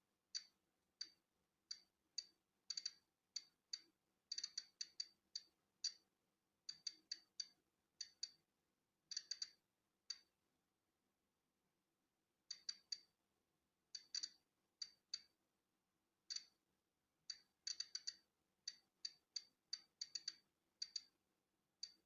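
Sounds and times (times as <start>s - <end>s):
geiger counter clicking: 0.4s - 6.0s, 6.7s - 8.4s, 9.1s - 10.3s, 14.0s - 15.3s, 16.3s - 16.5s, 17.3s - 21.1s.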